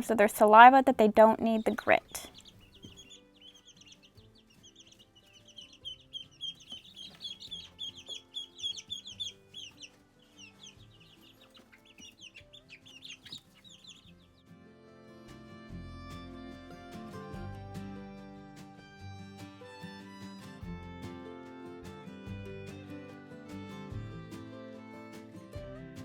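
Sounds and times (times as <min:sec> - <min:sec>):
quiet background music: 0:00.0 - 0:26.0
baby chicks peeping: 0:01.1 - 0:14.5.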